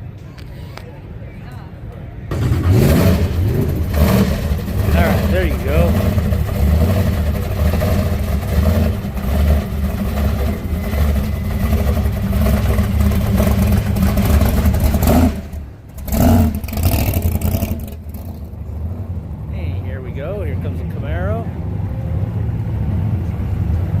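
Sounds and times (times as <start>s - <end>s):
car engine running: 2.3s - 19.9s.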